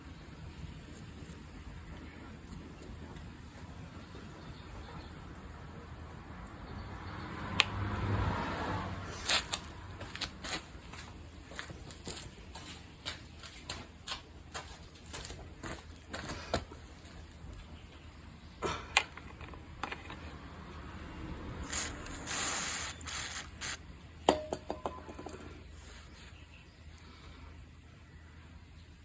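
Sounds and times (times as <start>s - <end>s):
short hiss: 21.6s - 23.8s.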